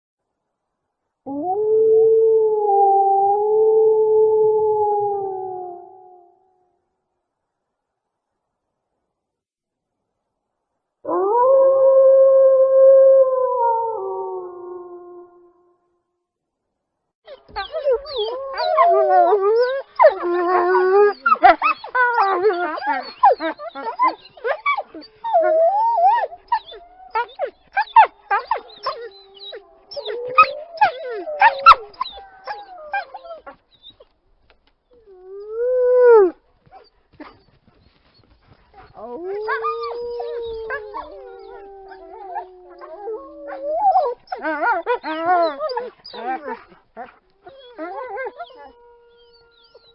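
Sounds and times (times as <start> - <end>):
wolves howling: 17.3 - 33.6, 38.0 - 49.9.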